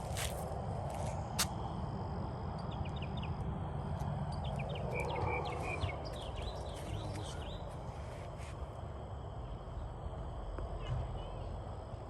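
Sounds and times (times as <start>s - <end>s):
steady low rumble: 0.0s - 12.0s
bird chirping: 2.6s - 3.4s, 4.3s - 7.8s.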